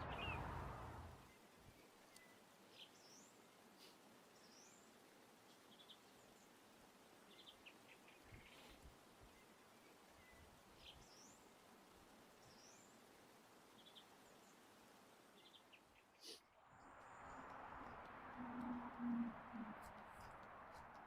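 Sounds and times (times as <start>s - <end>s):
brief low rumble: 0.0s - 1.2s
faint bird calls: 15.4s - 16.5s.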